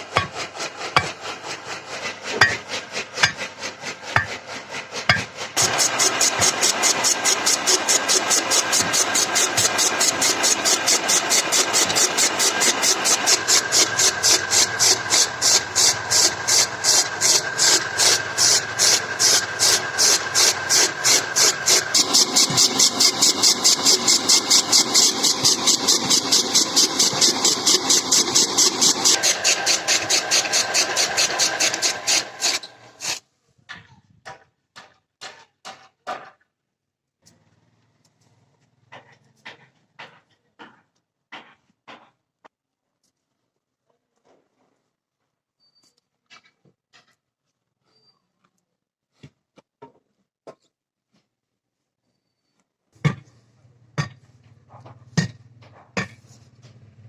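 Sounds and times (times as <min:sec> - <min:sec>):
engine running: 0:00.0 - 0:33.2.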